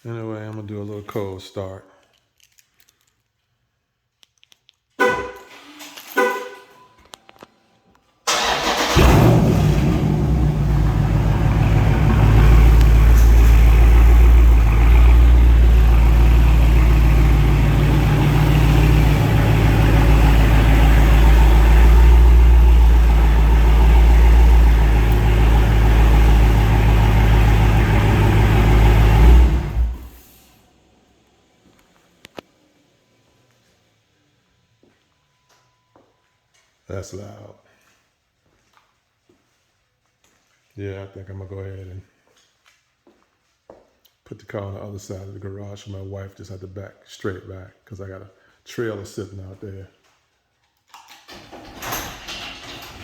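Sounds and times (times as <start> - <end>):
car engine starting and idling: 8.3 - 32.4, 51.2 - 53.0.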